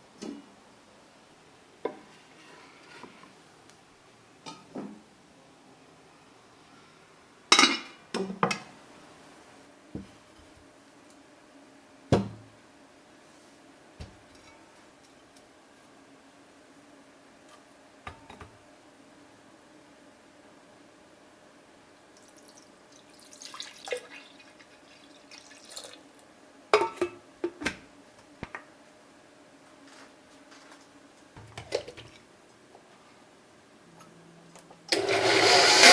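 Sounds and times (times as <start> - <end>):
dishes clinking and knocking: 26.8 - 27.8.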